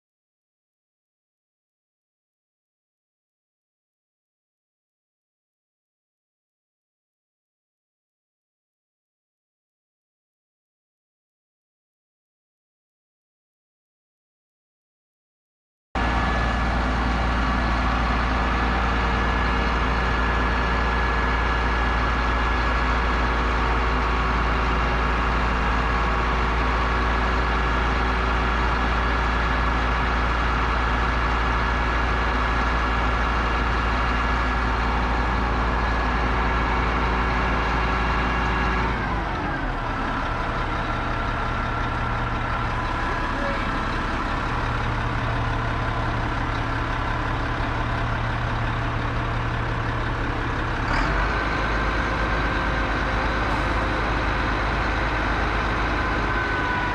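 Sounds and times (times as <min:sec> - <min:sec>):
heavy engine running: 0:16.0 - 0:56.9.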